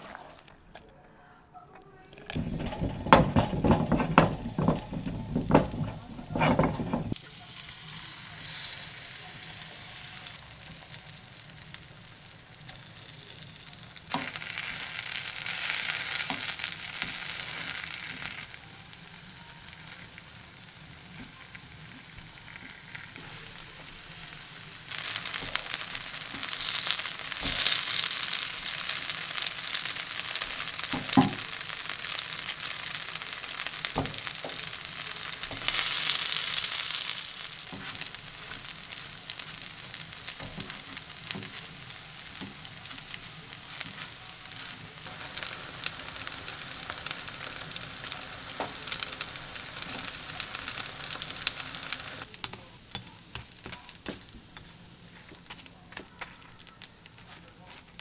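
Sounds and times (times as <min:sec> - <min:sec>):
chopsticks tapping a pan: 0:02.2 - 0:07.2, 0:14.1 - 0:18.4, 0:24.9 - 0:57.9
batter sizzling in a pan: 0:02.3 - 0:58.0.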